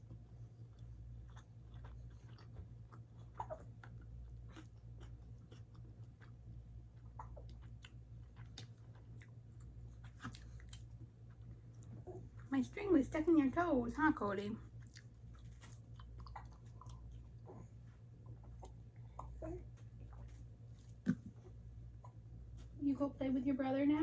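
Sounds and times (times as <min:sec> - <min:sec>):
low steady hum: 0:00.0 - 0:24.0
close chewing mouth sounds: 0:00.1 - 0:12.5, 0:14.6 - 0:21.5.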